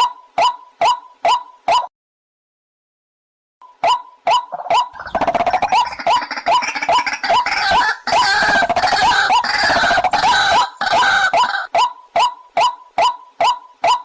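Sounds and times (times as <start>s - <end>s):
waterhen calling: 3.8s - 14.0s.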